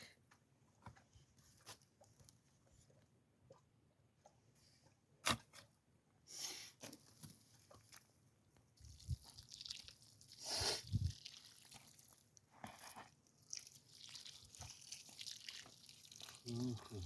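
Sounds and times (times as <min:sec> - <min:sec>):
faint crunching and crackling: 0:06.8 - 0:17.0.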